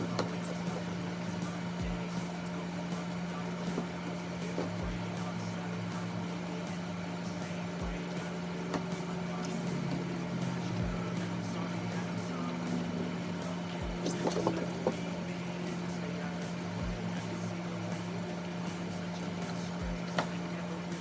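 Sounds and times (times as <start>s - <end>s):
low mechanical hum: 0.0s - 21.0s
soft low thumps: 4.6s - 5.2s, 9.9s - 13.1s, 16.8s - 17.2s.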